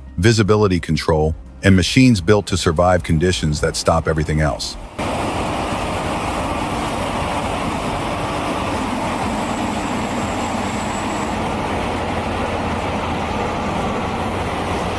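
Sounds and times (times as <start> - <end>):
heavy machine engine rumble: 3.3 - 14.9.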